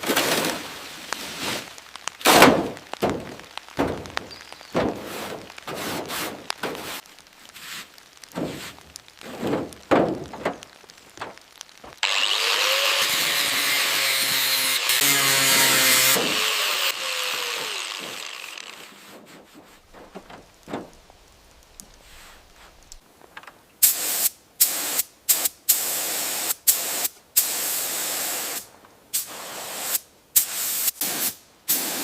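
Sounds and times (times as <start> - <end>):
hand scraping a surface: 4.8 - 10.6, 13.7 - 21.0
power tool whining: 12.0 - 19.0.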